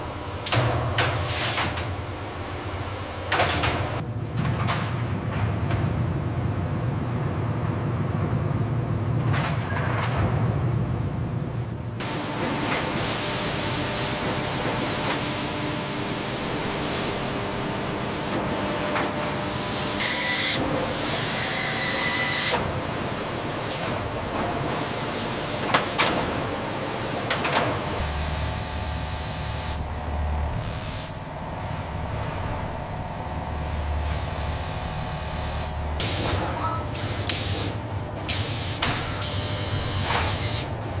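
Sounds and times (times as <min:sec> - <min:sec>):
low hum: 0:27.8 - 0:36.0.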